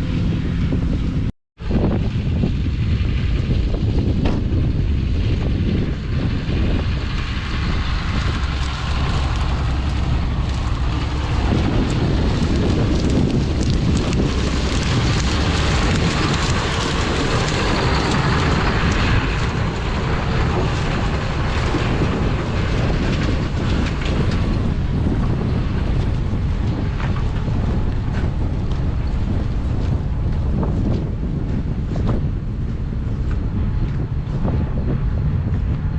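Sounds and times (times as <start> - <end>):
low engine drone: 0.0 - 35.9
machinery rushing noise: 0.0 - 35.9
wind on microphone: 0.0 - 35.9.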